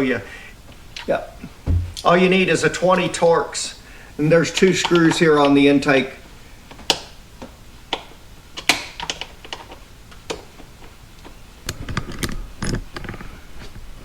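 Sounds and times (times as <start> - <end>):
handling knocks: 1.5 - 2.6.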